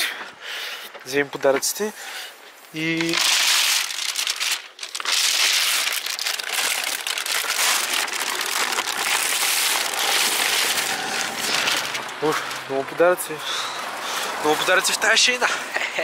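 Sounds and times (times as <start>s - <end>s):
gift wrapping rustling: 2.6s - 12.9s.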